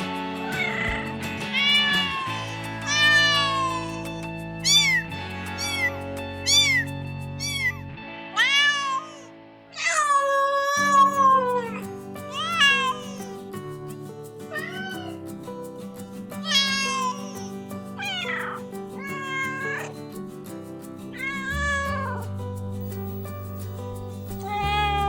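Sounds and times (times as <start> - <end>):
background music with steady beat: 0.0 - 7.7
cat meowing: 0.5 - 7.8, 8.4 - 11.8, 18.0 - 19.9, 21.2 - 22.2, 24.4 - 25.0.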